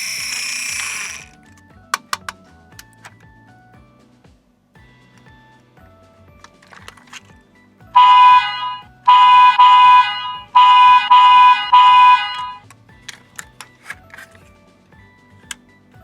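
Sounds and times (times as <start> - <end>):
toy truck electronic horn: 0.0 - 1.3, 8.0 - 12.6.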